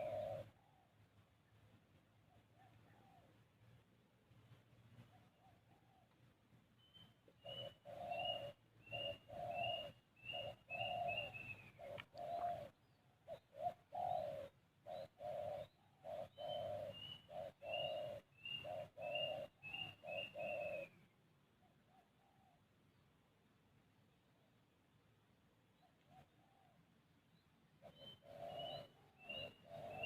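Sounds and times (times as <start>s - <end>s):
low hooting bird notes: 0.0s - 1.2s, 6.8s - 22.6s, 27.8s - 30.0s.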